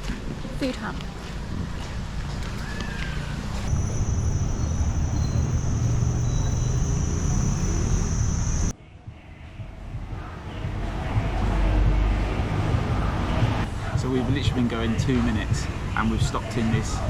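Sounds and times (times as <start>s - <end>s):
traffic rumble: 0.0s - 8.7s, 10.0s - 16.9s
wind on microphone: 3.4s - 8.7s
high-pitched whine: 3.6s - 8.7s.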